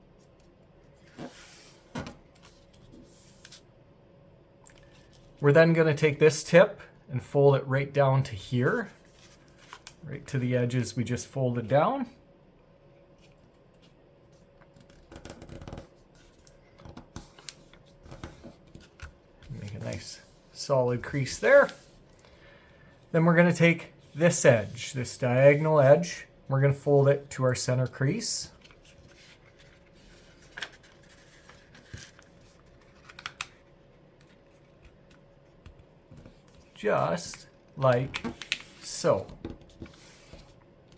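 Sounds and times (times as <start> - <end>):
paper rustling and crinkling: 16.2 - 20.4, 28.5 - 35.2, 36.1 - 40.6
paper being folded: 28.5 - 33.6.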